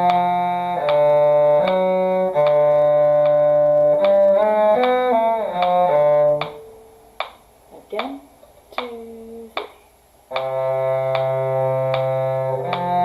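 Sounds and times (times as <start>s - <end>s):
violin playing: 0.0s - 6.9s, 10.3s - 13.0s
cello playing: 0.0s - 7.3s, 10.3s - 13.0s
metronome clicking: 0.0s - 13.0s.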